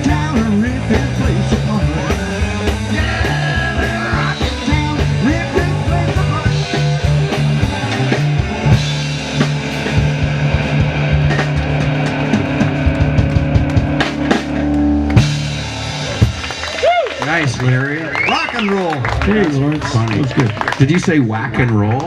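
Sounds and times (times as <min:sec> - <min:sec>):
electric guitar bending notes: 0:00.0 - 0:17.6
steady drum beat: 0:00.0 - 0:21.4
bass line: 0:00.0 - 0:21.9.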